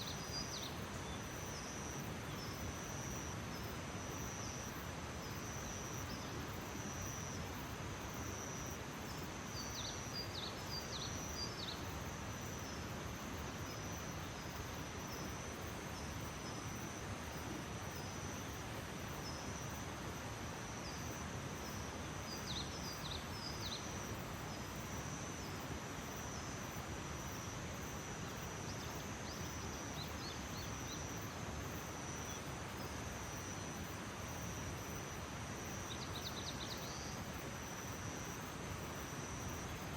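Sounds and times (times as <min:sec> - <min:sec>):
background hiss: 0:00.0 - 0:39.9
insect trill: 0:00.0 - 0:39.9.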